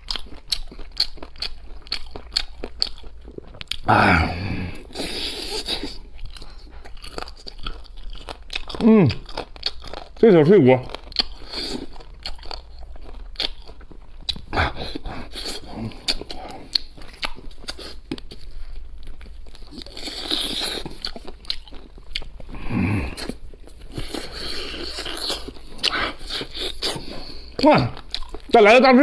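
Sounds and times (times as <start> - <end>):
chewing crunchy cartilage: 0.0 - 28.9.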